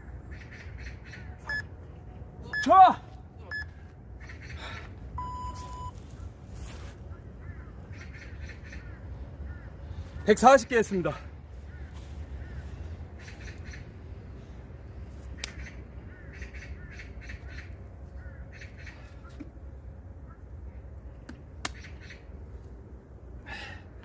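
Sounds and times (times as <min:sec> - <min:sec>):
low background rumble: 0:00.0 - 0:24.0
crows cawing: 0:07.4 - 0:10.2, 0:11.6 - 0:13.9, 0:15.6 - 0:19.4.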